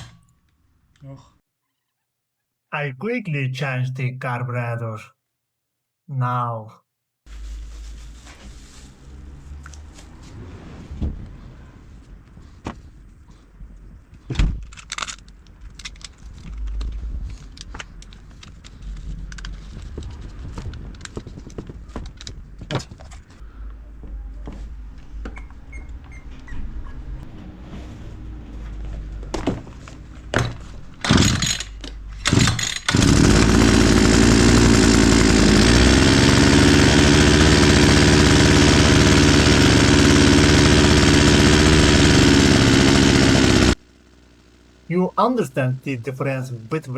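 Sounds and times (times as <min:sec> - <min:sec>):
brushcutter engine running: 0:32.9 - 0:44.8.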